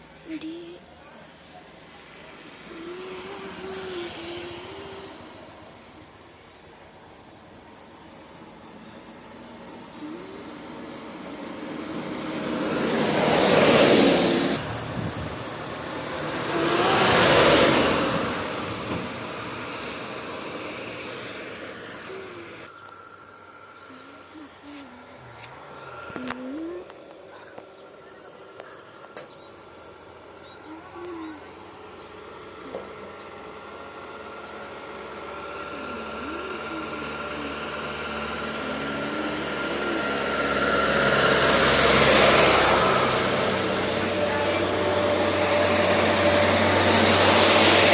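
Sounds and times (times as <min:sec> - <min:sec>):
truck passing by: 0:00.0 - 0:47.9.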